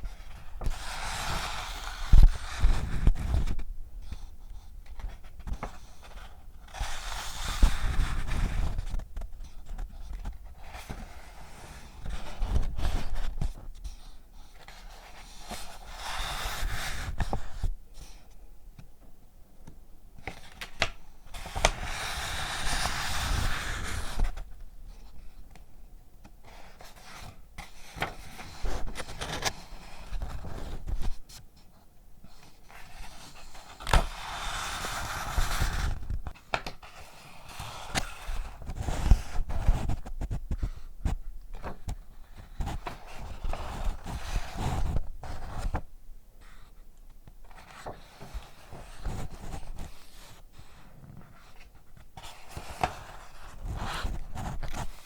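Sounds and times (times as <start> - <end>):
paper rustling and crinkling: 20.2 - 25.4, 26.4 - 31.3, 47.4 - 55.0.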